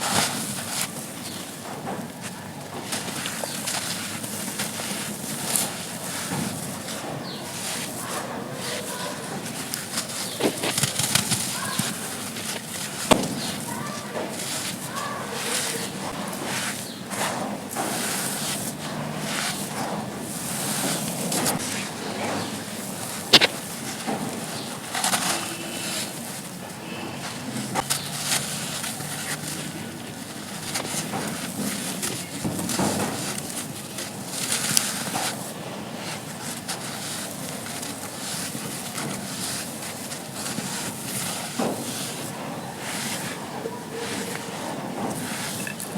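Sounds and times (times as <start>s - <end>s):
charcoal crumbling and crunching: 0.0s - 45.9s
charcoal snapping: 8.8s - 19.8s, 22.8s - 25.3s
sharp crack: 13.1s - 13.7s, 23.3s - 23.7s.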